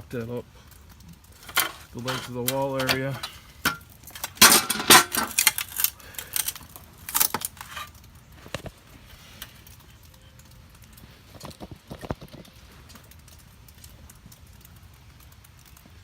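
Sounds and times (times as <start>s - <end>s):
metal window frame rattling: 1.4s - 7.9s.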